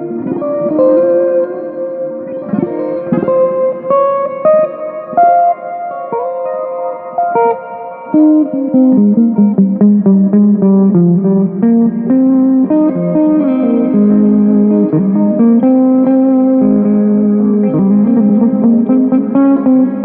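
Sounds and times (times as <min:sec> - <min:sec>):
plucked guitar music: 0:00.0 - 0:20.0.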